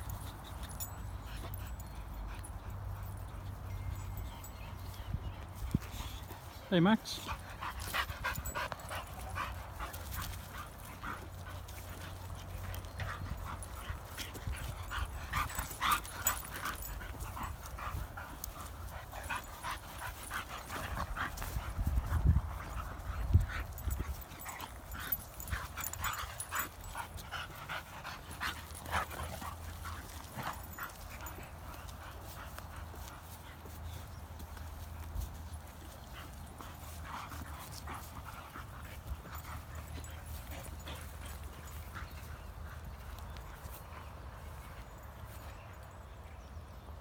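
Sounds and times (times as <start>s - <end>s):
dog whimpering and panting: 0.0s - 21.7s.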